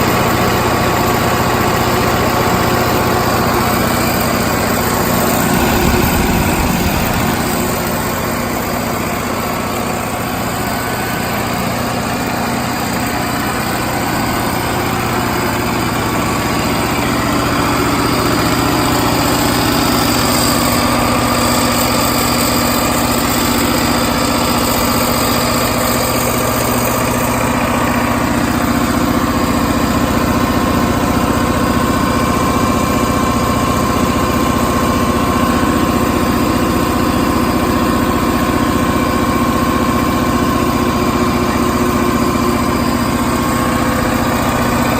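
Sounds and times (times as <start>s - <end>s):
diesel generator running: 5.0s - 8.5s.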